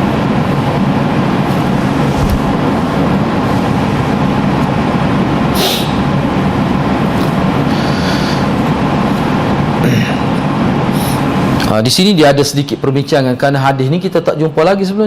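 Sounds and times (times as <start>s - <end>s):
loud rushing noise: 0.0s - 11.8s
low hum: 0.0s - 11.8s
short hiss: 5.6s - 6.0s.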